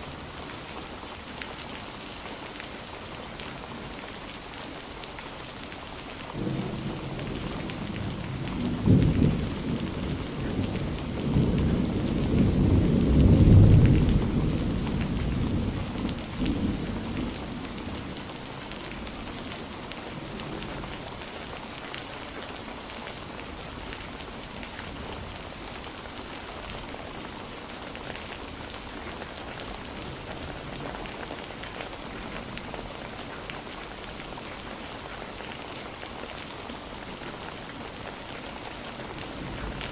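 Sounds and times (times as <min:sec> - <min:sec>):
steady rain: 0:00.0 - 0:39.9
thunder rumbling: 0:06.3 - 0:21.1.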